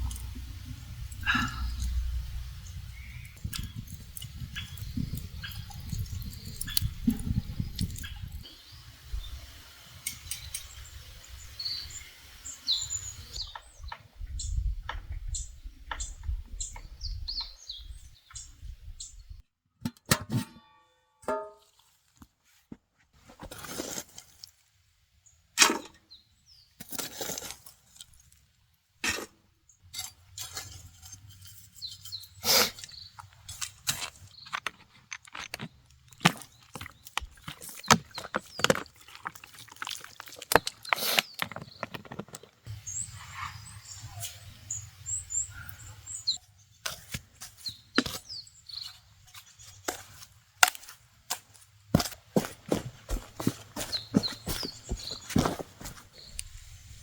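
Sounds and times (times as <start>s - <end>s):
knocks clicks and rustles: 33.1s - 42.7s, 51.3s - 56.2s.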